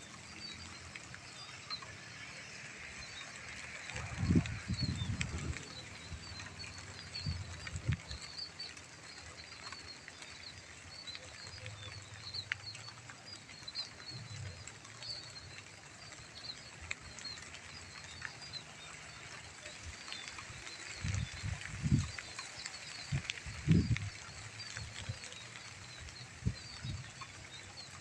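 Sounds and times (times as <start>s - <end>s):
light drizzle hiss: 0.0s - 28.0s.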